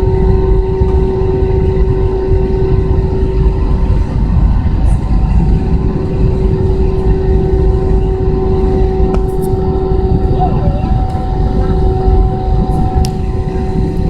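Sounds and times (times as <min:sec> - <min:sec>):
jet engine rumble in cabin: 0:00.0 - 0:14.0
steady hum: 0:00.0 - 0:14.0.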